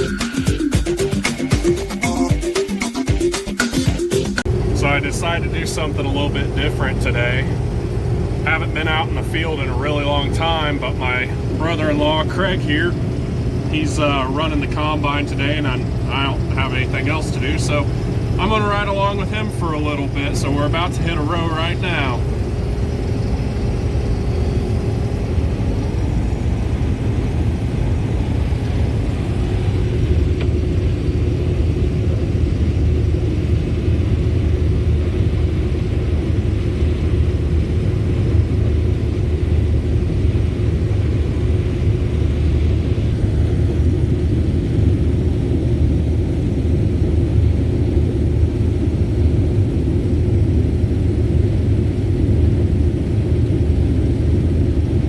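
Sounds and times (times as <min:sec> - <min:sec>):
combine harvester rumbling: 0:04.5 - 0:48.1.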